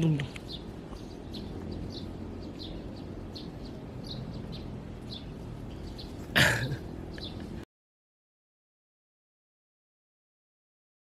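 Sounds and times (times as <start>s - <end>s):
small birds chirping: 0.0s - 7.6s
outdoor background noise: 0.0s - 7.7s.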